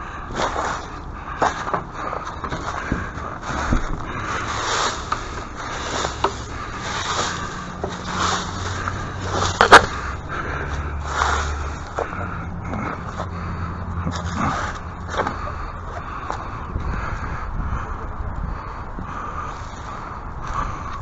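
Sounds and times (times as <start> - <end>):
scraping and handling: 0.3 - 13.3.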